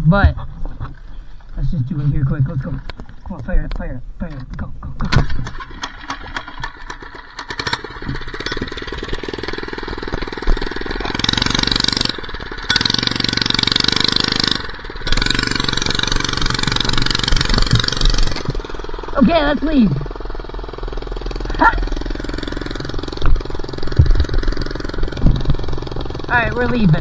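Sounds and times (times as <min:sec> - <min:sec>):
minibike engine revving: 0:05.0 - 0:27.0.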